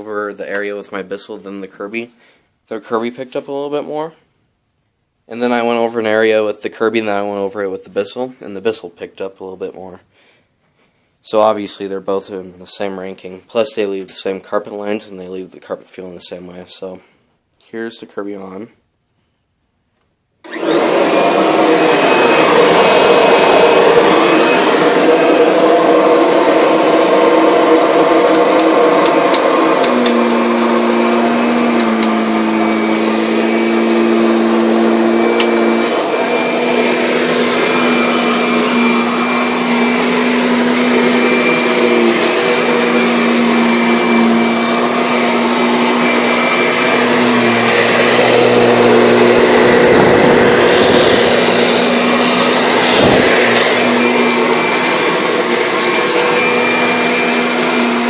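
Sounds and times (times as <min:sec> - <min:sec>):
vacuum cleaner running: 0:20.4 - 0:58.0.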